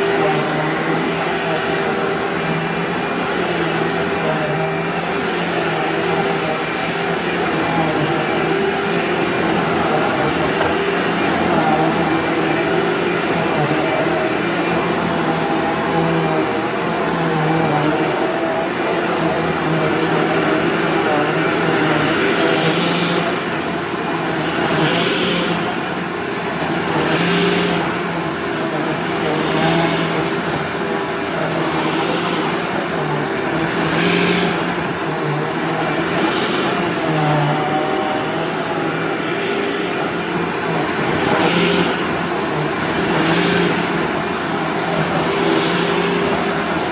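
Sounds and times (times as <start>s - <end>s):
vacuum cleaner running on rug: 0.0s - 46.9s.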